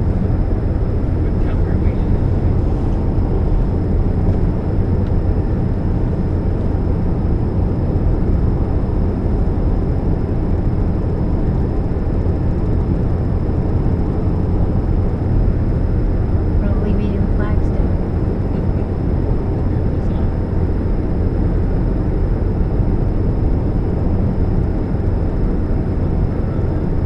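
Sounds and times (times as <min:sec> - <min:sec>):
car engine drone: 0:00.0 - 0:27.0
faint high whine: 0:00.0 - 0:27.0.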